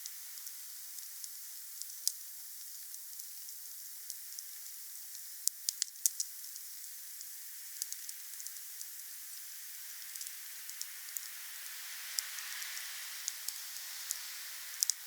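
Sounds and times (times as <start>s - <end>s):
fire crackling and popping: 0.0s - 9.1s, 12.1s - 14.2s, 14.8s - 15.0s
wood fire hissing: 0.0s - 15.0s.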